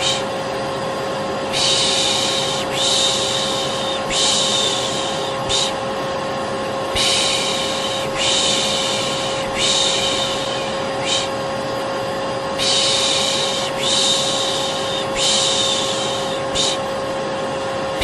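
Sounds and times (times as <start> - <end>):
person shushing: 0.0 - 0.3, 1.5 - 5.8, 7.0 - 11.4, 12.6 - 16.9
vacuum cleaner motor running: 0.0 - 18.0.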